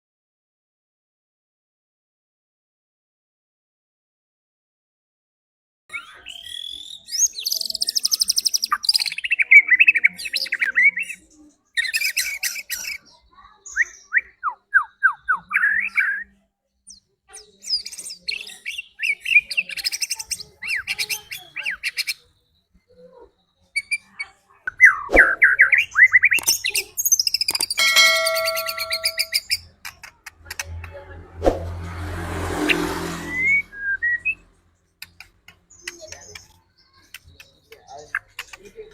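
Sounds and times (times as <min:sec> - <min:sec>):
bird song with whistles and trills: 0:05.9 - 0:29.7, 0:33.3 - 0:38.9.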